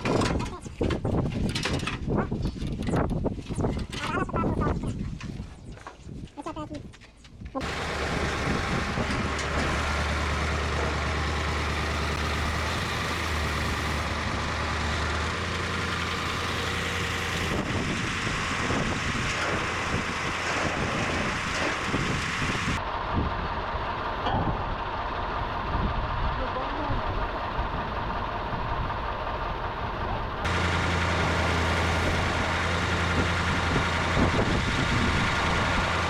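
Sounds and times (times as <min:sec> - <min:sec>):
knocks and clatter: 0:00.0 - 0:04.3
truck engine running: 0:07.6 - 0:36.0.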